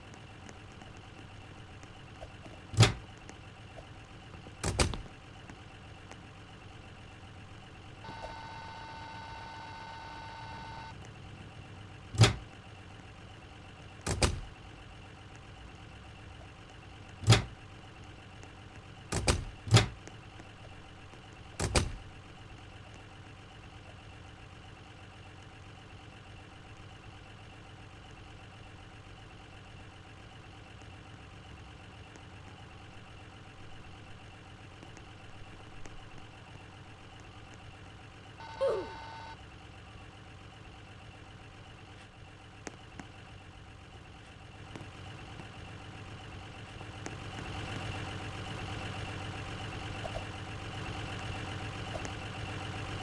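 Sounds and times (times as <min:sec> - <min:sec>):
steady low hum: 0:08.0 - 0:11.0
steady electronic tone: 0:08.1 - 0:10.9.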